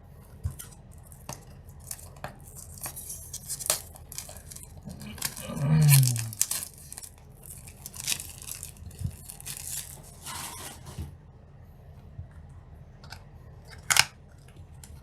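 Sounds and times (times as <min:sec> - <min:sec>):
shrink wrap tearing and crinkling: 0:00.5 - 0:10.8.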